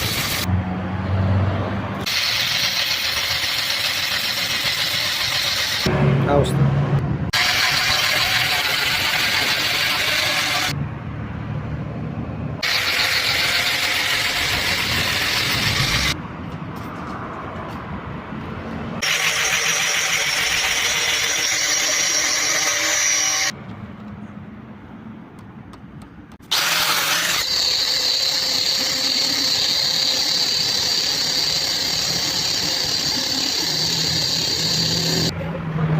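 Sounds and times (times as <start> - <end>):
power tool grinding stone: 2.1 - 5.9, 7.4 - 10.8, 12.6 - 16.2, 19.0 - 23.5, 26.4 - 35.3
high-pitched whine: 26.5 - 35.4.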